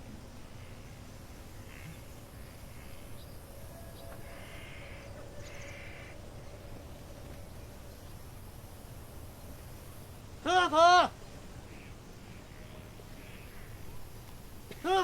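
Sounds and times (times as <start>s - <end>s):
low outdoor rumble: 0.0s - 10.5s
crow cawing: 4.0s - 6.2s.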